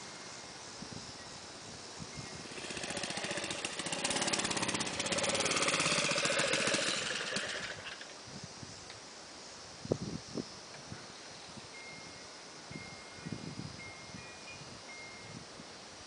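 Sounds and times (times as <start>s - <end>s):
mini bike engine passing: 2.4s - 8.2s.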